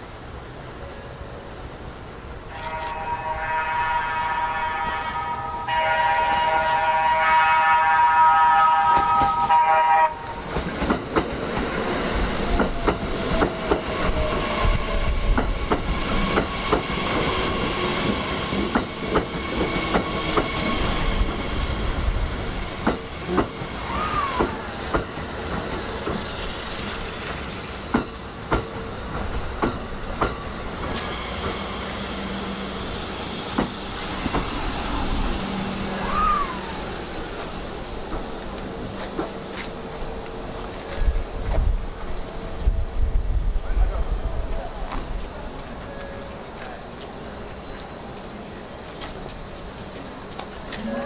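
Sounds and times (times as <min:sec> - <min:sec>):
high train whine: 0:00.0 - 0:51.0
train wheels clacking on rail joints: 0:10.2 - 0:21.5, 0:22.5 - 0:23.7, 0:24.3 - 0:31.8, 0:33.2 - 0:34.7, 0:37.4 - 0:41.7.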